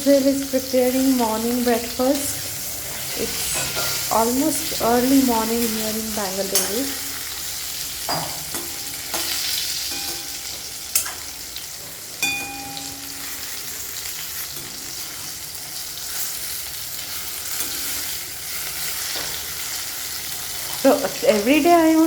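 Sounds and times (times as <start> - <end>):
food sizzling in a pan: 0.0 - 22.0
metal utensil knocking on pan: 8.1 - 11.2, 12.2 - 13.4.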